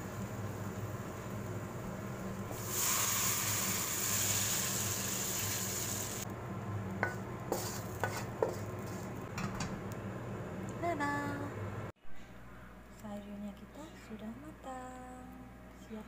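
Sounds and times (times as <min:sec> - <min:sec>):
bean sprouts sizzling in a wok: 0:02.5 - 0:06.3, 0:07.0 - 0:09.3
wooden spatula knocking on wok: 0:07.0 - 0:08.7.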